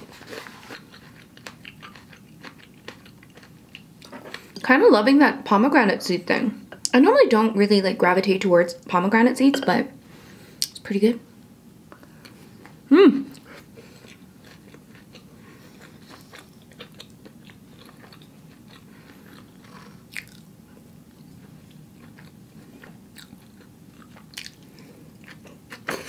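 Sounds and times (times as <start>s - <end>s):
person chewing crisp salad: 0.0s - 4.6s, 12.0s - 26.0s.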